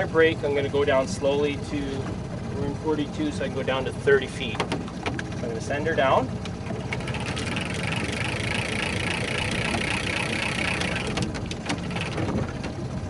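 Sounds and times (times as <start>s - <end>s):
boat engine idling: 0.0s - 13.0s
spool whirring: 6.3s - 13.0s.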